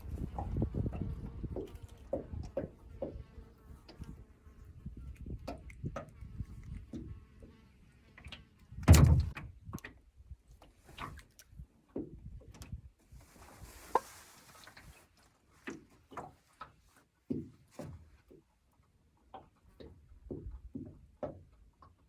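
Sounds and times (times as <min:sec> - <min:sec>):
heavy thump: 0:08.9 - 0:09.4.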